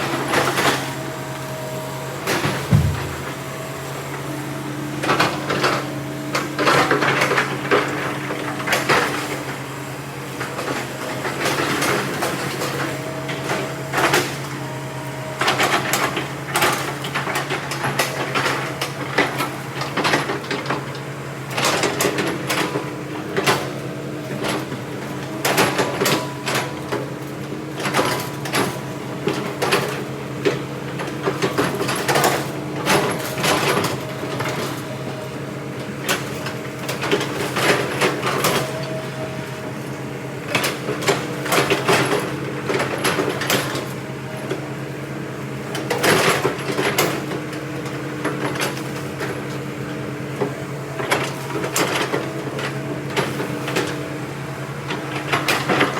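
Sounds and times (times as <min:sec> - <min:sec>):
logs knocking and clanking: 0:02.7 - 0:03.4.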